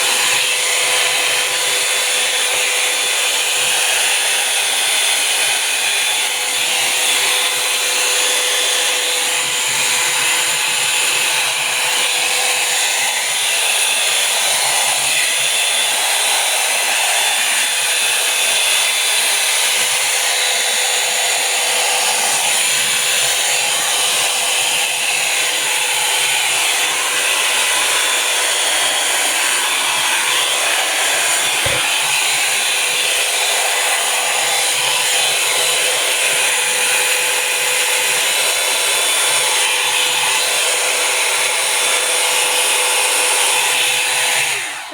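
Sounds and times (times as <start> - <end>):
hair dryer running: 0.0 - 44.9.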